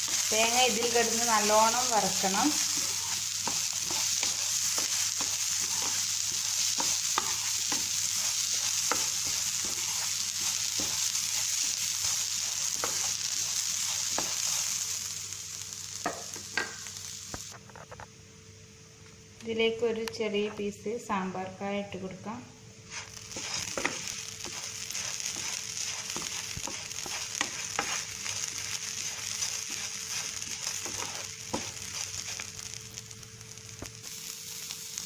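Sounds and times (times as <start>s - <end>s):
spatula stirring and scraping pan: 0.0s - 15.1s, 22.9s - 32.8s
coconut sizzling in oil: 0.0s - 17.6s, 22.8s - 35.0s.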